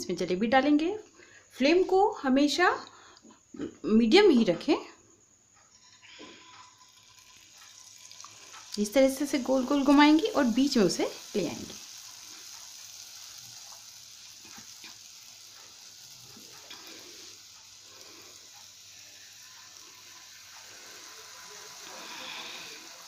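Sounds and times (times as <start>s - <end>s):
batter sizzling in hot oil: 5.6s - 23.0s.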